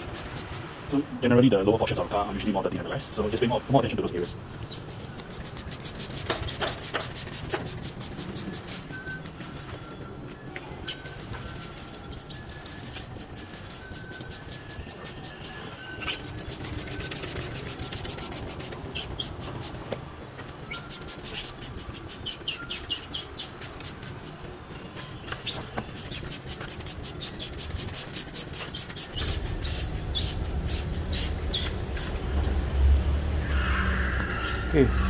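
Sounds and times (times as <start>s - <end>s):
short sharp cleaning strokes: 4.7s - 9.8s, 10.9s - 19.9s, 20.7s - 24.2s, 25.4s - 32.3s.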